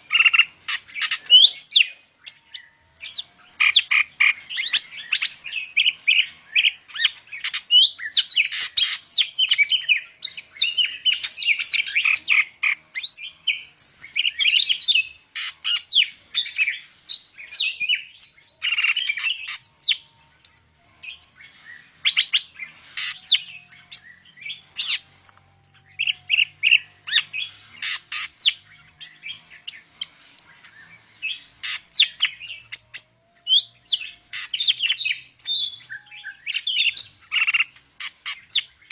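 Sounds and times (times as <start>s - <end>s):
bird singing chirps and trills: 0.0s - 38.9s.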